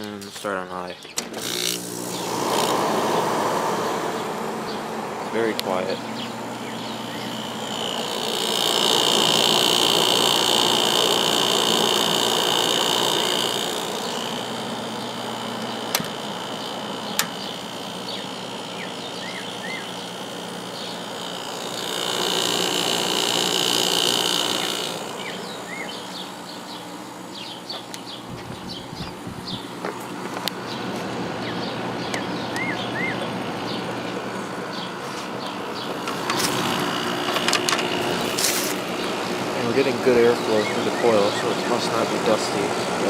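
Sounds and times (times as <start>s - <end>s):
air conditioner humming: 0.0s - 43.0s
loud high buzz: 1.3s - 43.0s
sharp clicks: 17.1s - 17.5s.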